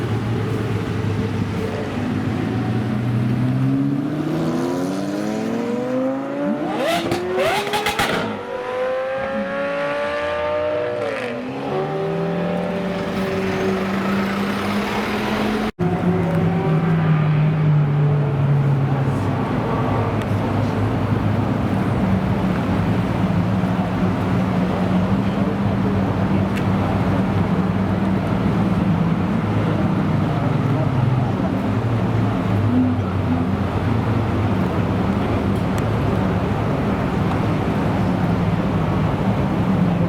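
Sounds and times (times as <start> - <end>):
sports car engine accelerating: 0.6 - 40.0.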